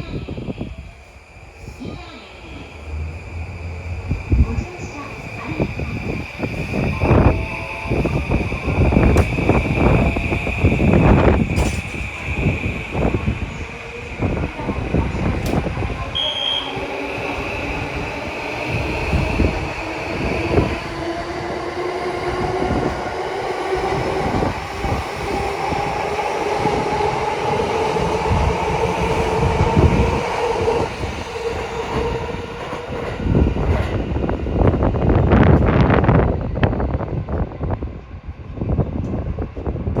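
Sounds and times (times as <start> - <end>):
steady high tone: 1.6 - 11.5.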